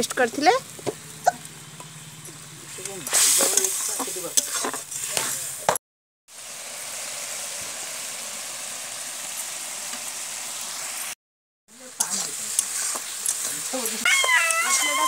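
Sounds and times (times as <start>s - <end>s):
paste sizzling: 0.0s - 15.0s
spatula scraping a pan: 2.8s - 5.6s, 12.0s - 13.8s.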